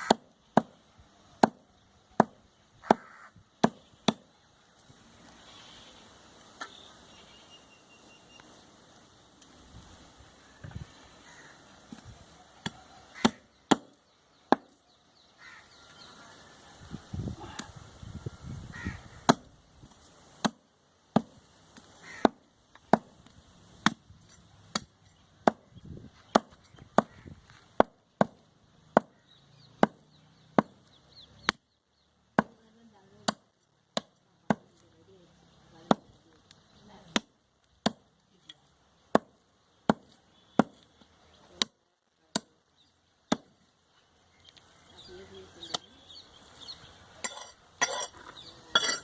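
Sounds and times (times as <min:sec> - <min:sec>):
cleaver chopping meat on wood: 0:00.0 - 0:00.8, 0:01.4 - 0:01.6, 0:02.2 - 0:04.2, 0:19.2 - 0:19.5, 0:26.3 - 0:30.8.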